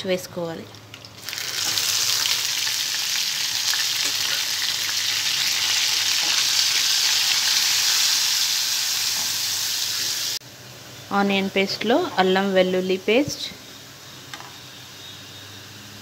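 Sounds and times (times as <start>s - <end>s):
stirring in a frying pan: 0.8s - 10.4s
paste sizzling in hot oil: 1.1s - 10.4s.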